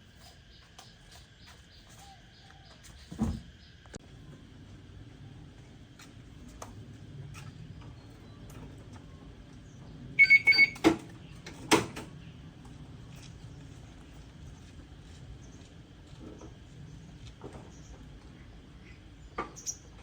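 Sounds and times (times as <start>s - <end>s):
high-pitched electronic beeps: 10.2s - 10.8s.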